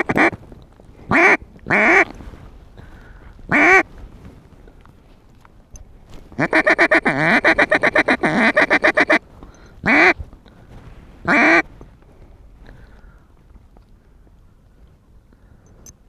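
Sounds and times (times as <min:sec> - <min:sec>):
duck call quacks: 0:00.0 - 0:00.4, 0:01.1 - 0:02.1, 0:03.5 - 0:03.8, 0:06.4 - 0:09.2, 0:09.8 - 0:10.2, 0:11.3 - 0:11.6.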